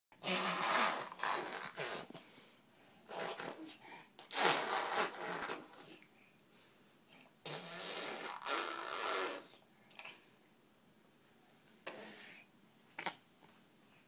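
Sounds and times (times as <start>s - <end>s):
baby blowing raspberries: 0.1s - 2.4s, 3.0s - 6.1s, 7.4s - 10.1s.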